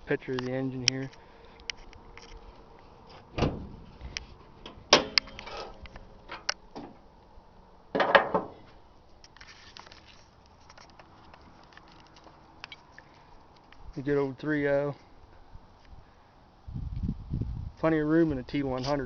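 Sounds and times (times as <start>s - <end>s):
truck hood clanking open: 3.3s - 3.9s, 4.6s - 7.0s, 7.9s - 8.6s
metal rattling clunk: 3.3s - 4.0s, 4.6s - 7.0s, 7.9s - 8.6s.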